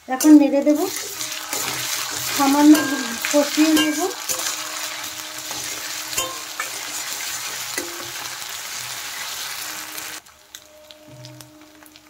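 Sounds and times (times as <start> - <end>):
onion sizzling in hot oil: 0.0 - 12.0
metal spatula stirring: 0.2 - 9.8.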